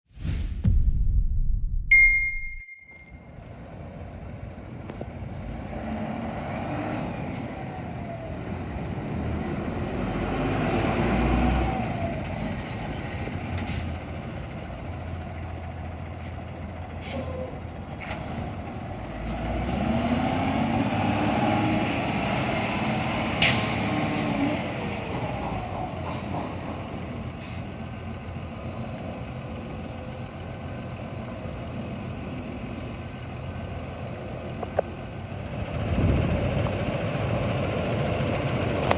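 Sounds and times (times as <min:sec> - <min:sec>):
truck engine revving: 0:03.5 - 0:38.9
air brake hiss: 0:13.7 - 0:14.0, 0:17.0 - 0:17.5, 0:23.4 - 0:23.8, 0:27.4 - 0:27.8.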